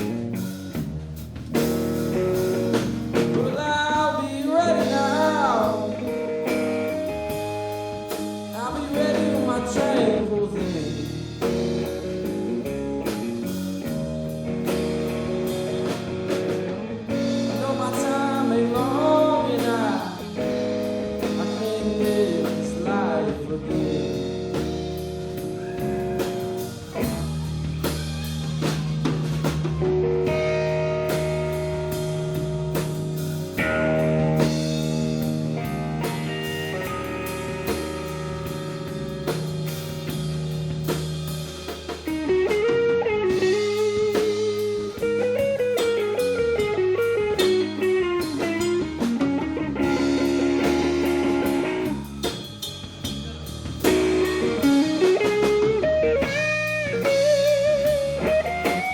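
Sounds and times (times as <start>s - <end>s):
blues band playing: 0.0s - 58.9s
electric guitar lead bent notes: 0.0s - 58.9s.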